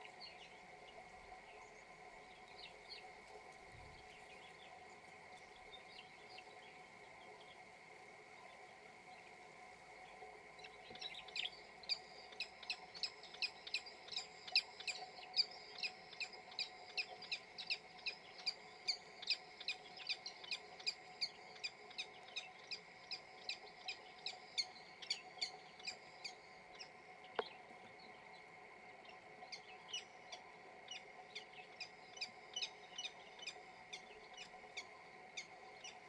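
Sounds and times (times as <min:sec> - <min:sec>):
faint hum: 0:00.0 - 0:36.0.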